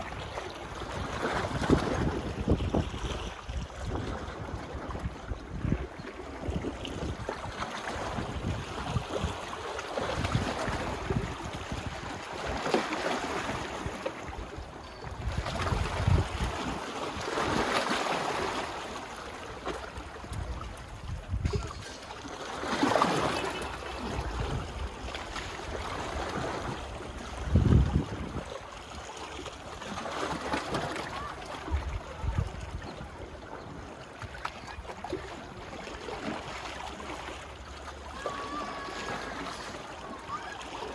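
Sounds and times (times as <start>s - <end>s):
wind buffeting microphone: 0.0s - 9.4s, 10.1s - 12.3s, 13.5s - 16.8s, 20.2s - 22.0s, 24.0s - 28.6s, 31.6s - 33.8s
small waves washing onto beach: 0.0s - 40.9s.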